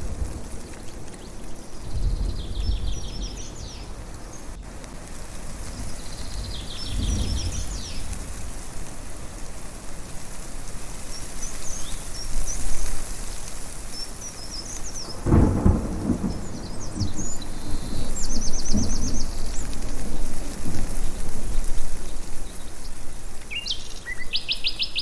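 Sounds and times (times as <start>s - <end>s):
small birds chirping: 0.0s - 4.7s, 5.6s - 9.2s, 10.2s - 25.0s
thunder rumbling: 0.0s - 8.9s, 15.0s - 23.5s.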